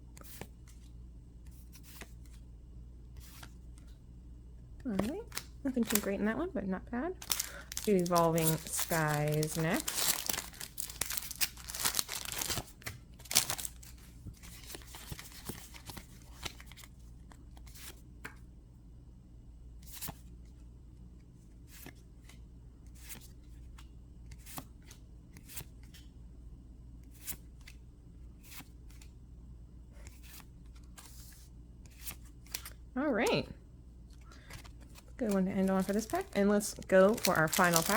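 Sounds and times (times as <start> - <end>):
foil wrapper crinkling and tearing: 7.2 - 13.9, 35.6 - 37.9.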